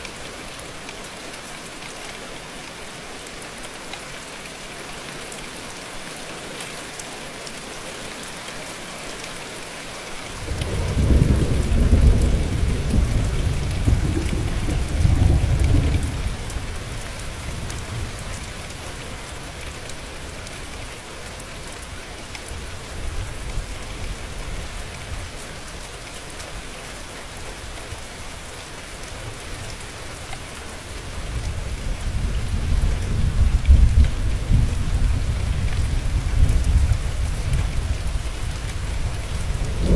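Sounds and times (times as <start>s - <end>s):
steady rain: 0.0s - 39.9s
thunder rumbling: 10.4s - 18.5s, 31.3s - 39.9s.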